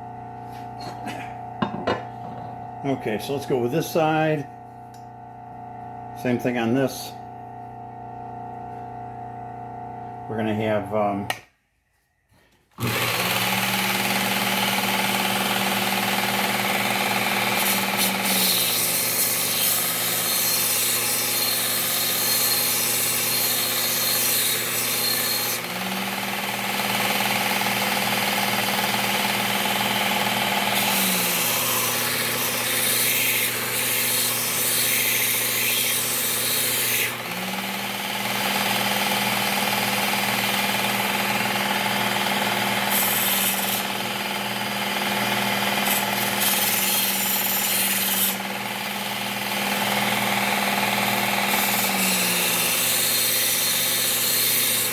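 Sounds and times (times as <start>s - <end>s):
belt sharpener motor humming: 0.0s - 11.4s, 12.8s - 54.9s
blade grinding on abrasive belt: 12.8s - 54.9s.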